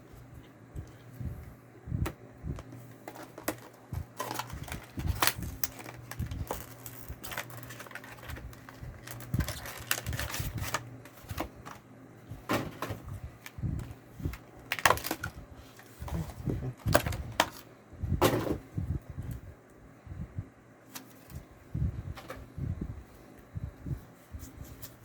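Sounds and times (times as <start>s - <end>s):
low steady hum: 0.0s - 25.0s
crinkling of wrapping: 3.1s - 11.8s, 14.6s - 15.9s.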